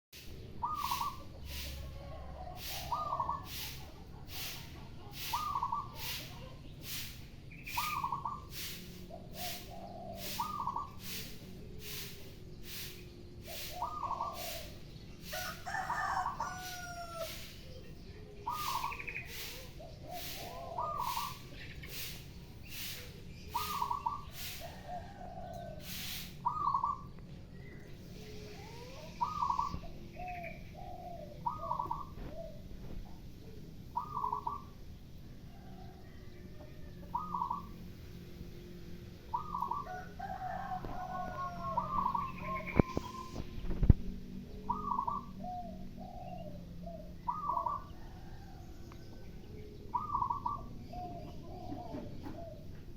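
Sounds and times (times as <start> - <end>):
broom sweeping the ground: 0.1 - 25.0, 25.7 - 26.8, 27.8 - 29.9, 40.8 - 44.0
doves cooing: 0.5 - 27.2, 27.8 - 38.0, 39.2 - 43.4, 44.6 - 52.9.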